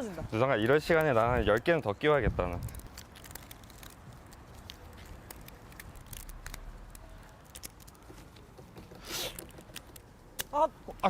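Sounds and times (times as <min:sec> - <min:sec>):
rubber bands snapping: 0:02.5 - 0:10.6.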